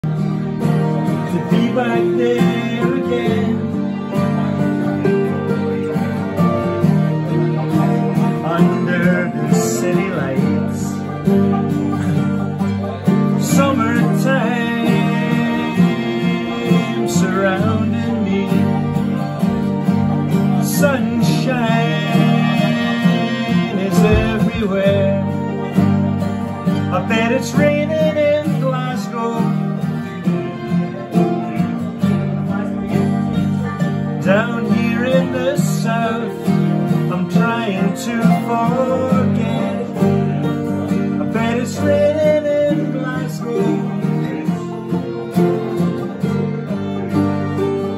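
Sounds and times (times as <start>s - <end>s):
acoustic guitar accompaniment: 0.0s - 47.9s.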